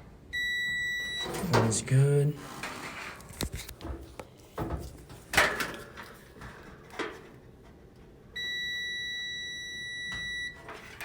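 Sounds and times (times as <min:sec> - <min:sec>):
multimeter continuity beep: 0:00.3 - 0:01.3, 0:08.4 - 0:10.6.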